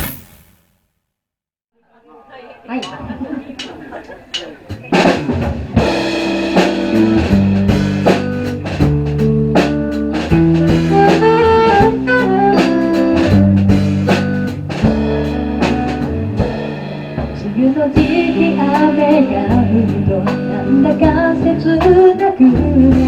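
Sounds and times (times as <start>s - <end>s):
drum kit beat: 4.4s - 23.0s
live band playing: 4.7s - 23.0s.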